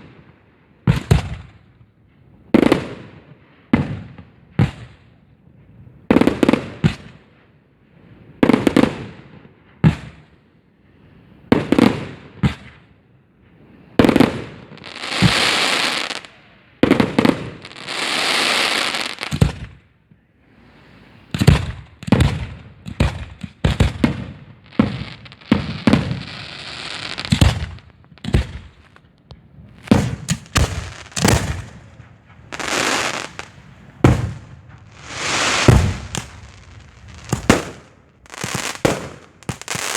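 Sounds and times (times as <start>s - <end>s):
fireworks hissing and crackling: 13.5s - 39.9s
firework shells bursting: 29.7s - 39.9s.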